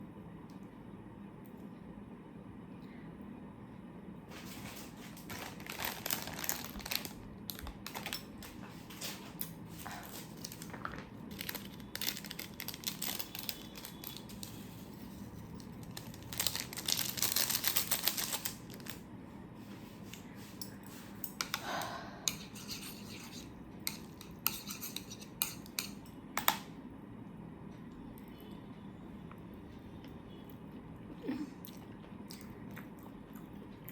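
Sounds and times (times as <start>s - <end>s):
rustling or crinkling: 4.3s - 19.0s
cutlery and dishes clinking: 7.9s - 9.4s, 22.3s - 26.6s.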